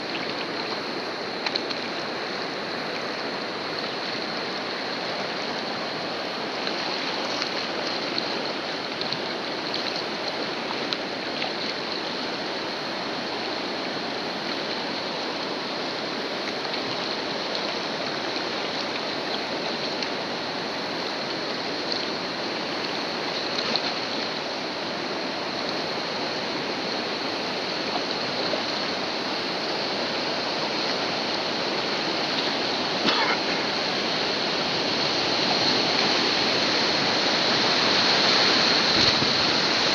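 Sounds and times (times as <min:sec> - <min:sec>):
whitewater rushing: 0:00.0 - 0:39.9
sharp water splashes: 0:21.1 - 0:24.7.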